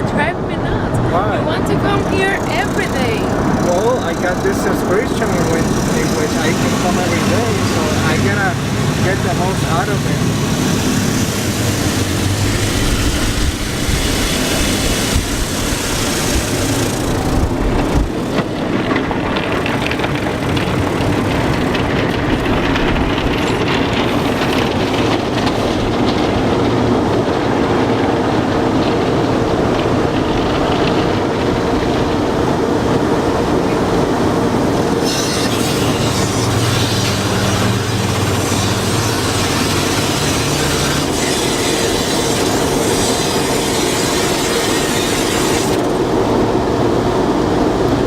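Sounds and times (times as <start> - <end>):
car wash machinery rumbling: 0.0 - 48.0.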